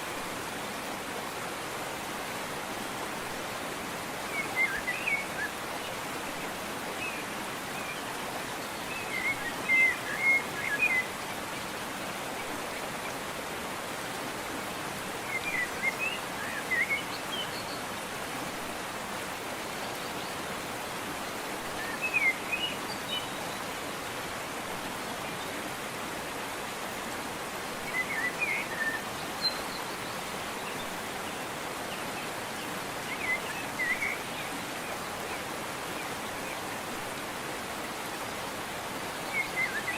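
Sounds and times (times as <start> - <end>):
water rushing: 0.0 - 39.9
songbird chirping: 27.8 - 36.8.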